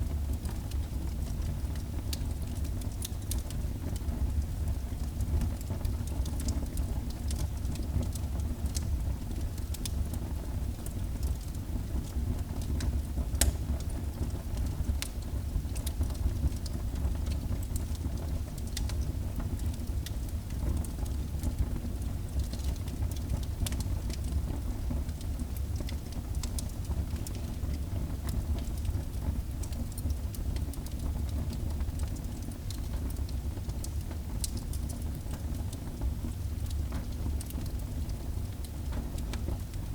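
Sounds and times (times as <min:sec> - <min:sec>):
fire crackling and popping: 0:00.0 - 0:39.9
wood fire rumbling: 0:10.8 - 0:39.9.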